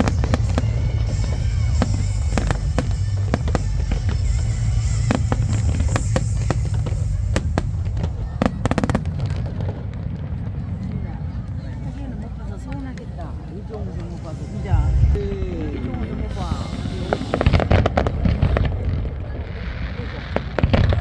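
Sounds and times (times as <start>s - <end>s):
sharp firework cracks: 0.0s - 10.3s, 15.7s - 19.3s
rumble of bursting fireworks: 0.0s - 21.0s.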